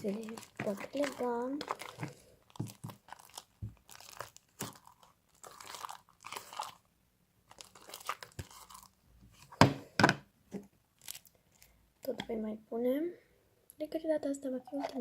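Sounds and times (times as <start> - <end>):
slime squishing in a bowl: 0.0 - 9.8.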